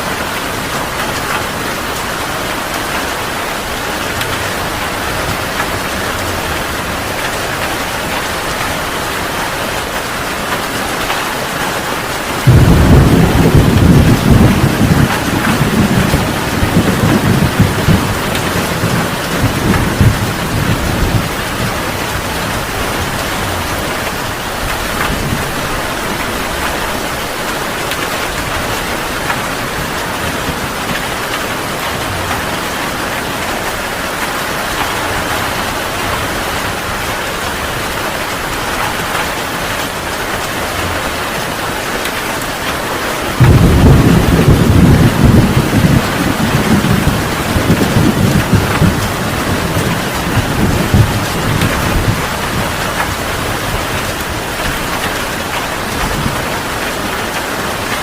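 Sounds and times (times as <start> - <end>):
heavy rain falling: 0.0 - 58.0
thunder rumbling: 12.0 - 39.4, 43.2 - 58.0.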